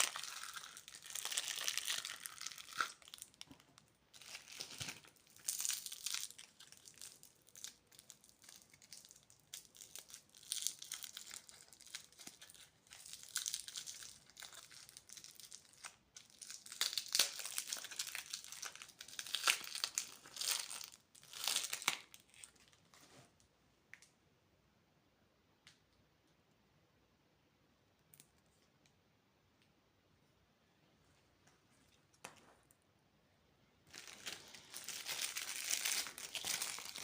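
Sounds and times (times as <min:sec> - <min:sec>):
plastic wrappers crinkling and tearing: 0:00.0 - 0:22.8, 0:33.9 - 0:37.0.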